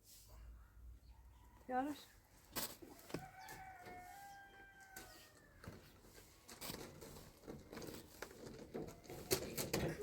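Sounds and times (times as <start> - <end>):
rooster crowing: 3.0 - 5.7.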